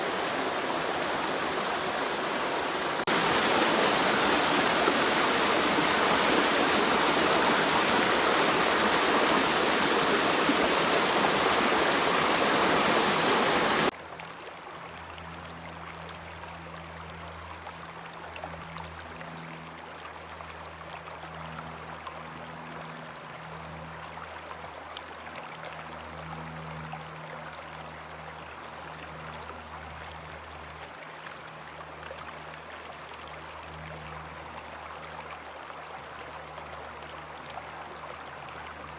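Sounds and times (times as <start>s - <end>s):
creek water rushing: 0.0s - 13.9s.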